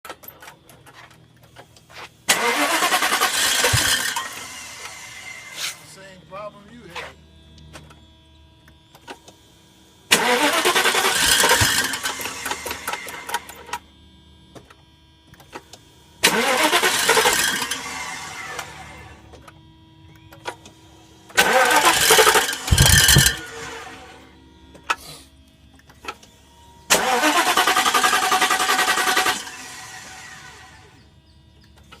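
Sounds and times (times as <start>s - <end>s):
car engine cranking: 2.3s - 6.1s, 10.1s - 13.8s, 16.2s - 20.7s, 21.3s - 24.2s, 26.9s - 30.9s.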